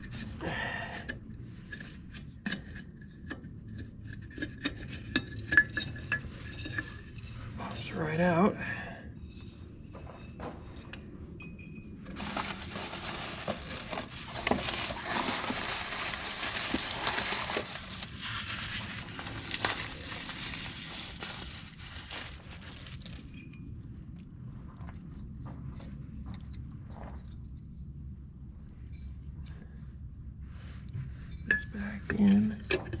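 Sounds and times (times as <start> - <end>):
rustling and crinkling: 9.4 - 29.8.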